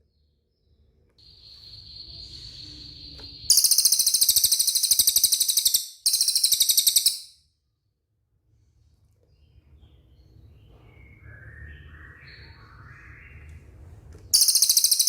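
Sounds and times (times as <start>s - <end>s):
songbird whistle and rattling trill: 1.2s - 7.4s, 14.4s - 15.0s.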